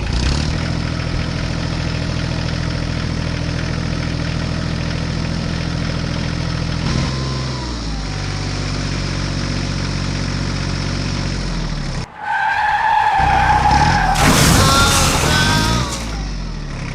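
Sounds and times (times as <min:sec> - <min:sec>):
vehicle engine running: 0:00.0 - 0:16.9
high steady squeal: 0:12.1 - 0:14.4
loud noisy burst: 0:13.8 - 0:16.2.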